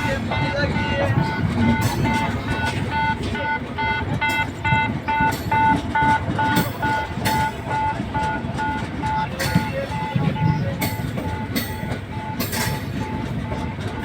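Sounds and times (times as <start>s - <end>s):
electronic warning beeper: 0.0s - 14.0s
rumble of traffic or machinery: 0.0s - 14.0s.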